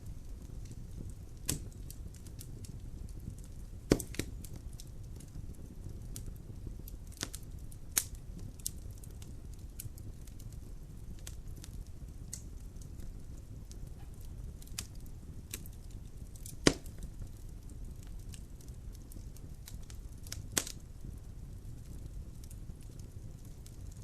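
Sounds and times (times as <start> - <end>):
fire crackling and popping: 0.0 - 24.0
fire rumbling: 0.0 - 24.0.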